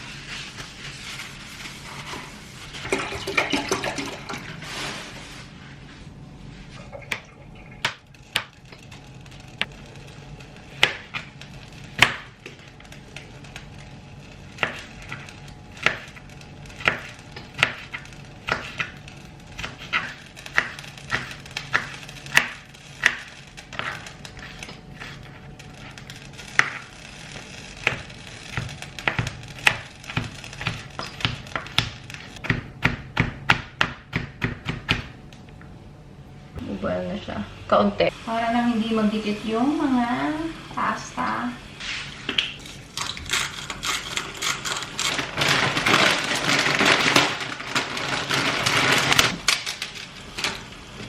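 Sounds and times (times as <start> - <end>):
knife chopping on cutting board: 27.8 - 35.2.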